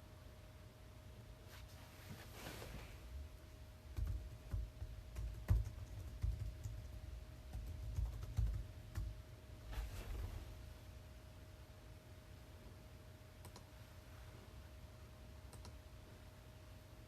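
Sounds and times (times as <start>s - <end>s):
typing on keyboard: 3.9s - 9.2s.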